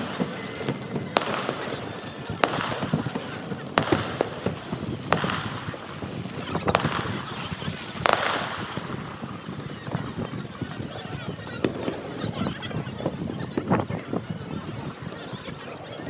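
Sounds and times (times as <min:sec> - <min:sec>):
distant fireworks bangs: 0:00.0 - 0:10.9.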